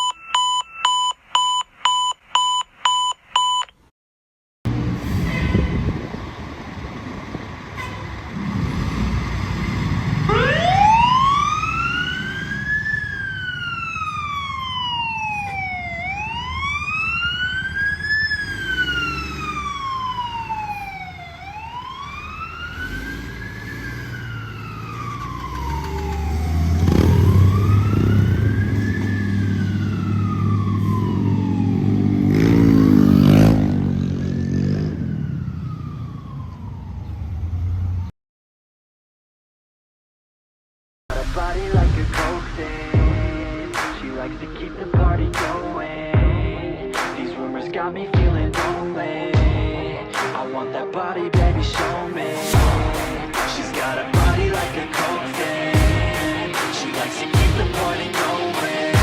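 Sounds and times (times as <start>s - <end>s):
fire truck siren wailing: 0.0s - 1.0s, 4.7s - 38.1s, 49.9s - 59.0s
horn blast: 4.7s - 6.2s, 51.7s - 59.0s
diesel engine rumble: 4.7s - 38.1s, 41.1s - 59.0s.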